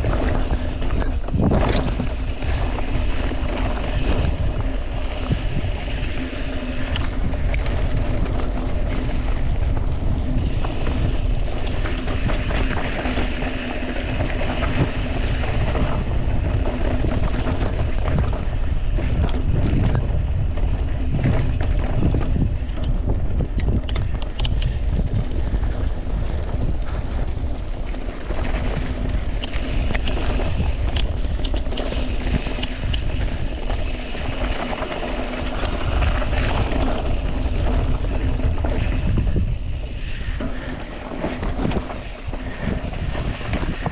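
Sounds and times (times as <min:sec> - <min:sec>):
bike clicks and rattles: 0:00.0 - 0:43.9
tyres rumbling on rough trail: 0:00.0 - 0:43.9
wind buffeting microphone: 0:00.0 - 0:43.9.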